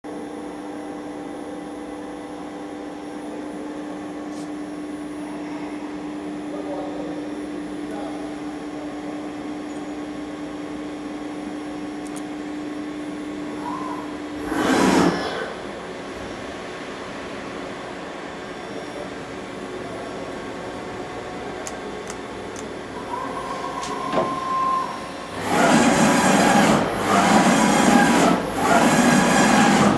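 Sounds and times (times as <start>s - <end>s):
grinder machine hum: 13.0s - 29.9s
surface grinder running: 24.7s - 29.9s.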